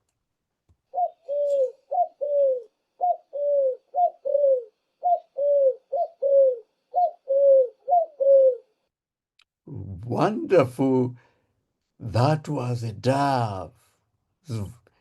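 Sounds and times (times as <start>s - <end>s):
dove cooing: 0.9s - 8.7s.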